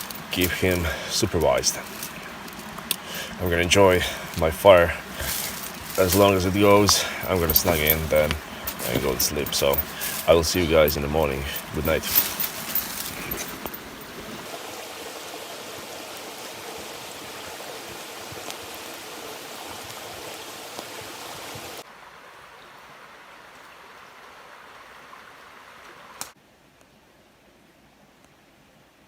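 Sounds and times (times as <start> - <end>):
fire crackles: 0.0 - 14.4
campfire hissing: 0.0 - 21.9.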